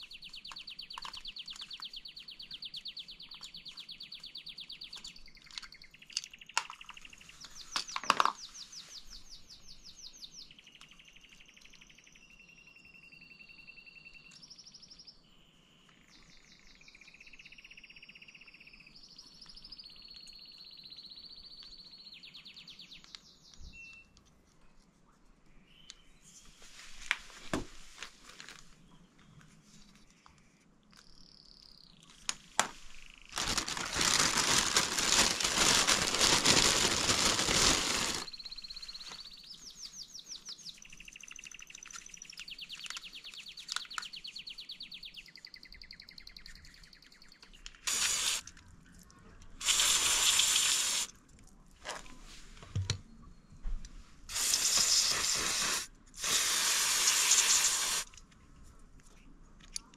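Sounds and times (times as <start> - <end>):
clicks of small parts handled: 0.5 - 1.8, 7.7 - 8.4, 59.0 - 59.9
loud steady hiss: 32.6 - 38.3, 47.9 - 48.4, 49.6 - 51.1, 54.3 - 58.1
birds chirping and trilling: 32.9 - 47.9.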